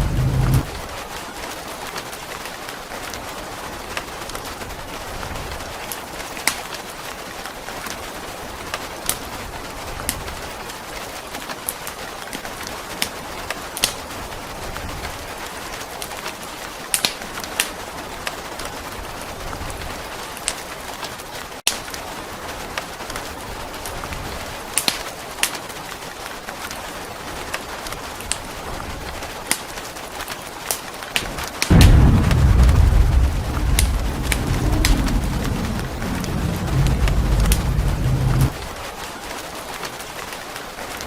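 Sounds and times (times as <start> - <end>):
soft low rumbles: 0.0 - 0.8, 31.7 - 38.7
fireplace crackles and pops: 0.0 - 0.9, 16.9 - 18.3, 24.7 - 25.6, 27.8 - 38.9
rain hiss: 0.0 - 40.9.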